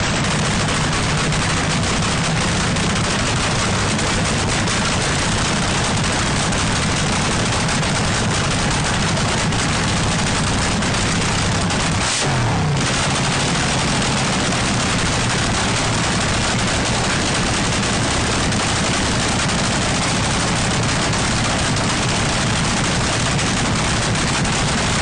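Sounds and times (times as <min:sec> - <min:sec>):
drag car engine running: 0:00.0 - 0:25.0
exhaust popping: 0:00.0 - 0:25.0.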